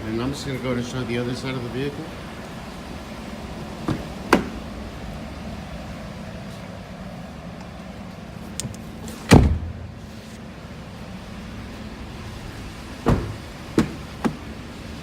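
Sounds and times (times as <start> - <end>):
steady low hum: 0.0 - 15.0
truck door shutting thump: 3.8 - 4.6, 8.6 - 10.0, 13.0 - 14.4
truck door clicks: 8.5 - 9.9.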